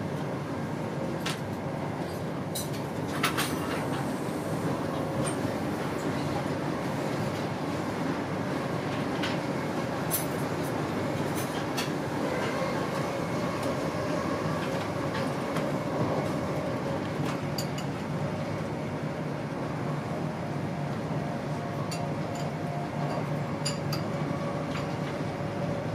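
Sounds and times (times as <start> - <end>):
train wheels rumbling on rail: 0.0 - 25.9.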